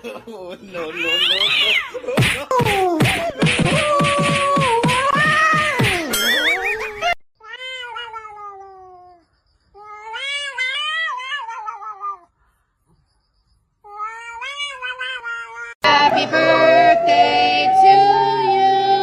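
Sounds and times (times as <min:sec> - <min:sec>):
cat yowling: 0:07.4 - 0:09.2, 0:09.8 - 0:12.3, 0:13.9 - 0:15.8.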